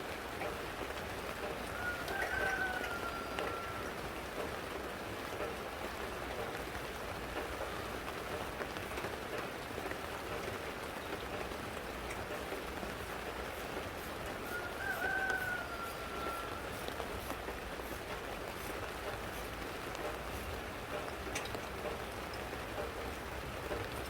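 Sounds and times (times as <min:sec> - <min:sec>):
rain patter: 0:00.0 - 0:24.0.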